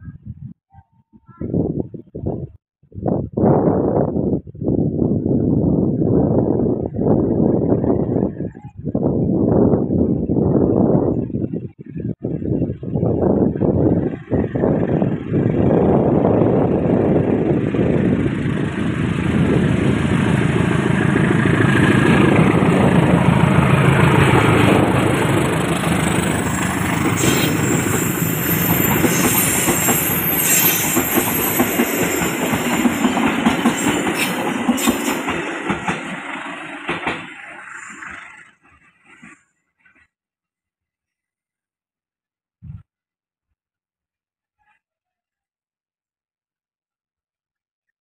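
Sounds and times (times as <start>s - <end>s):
train wheels clattering: 20.9s - 37.4s.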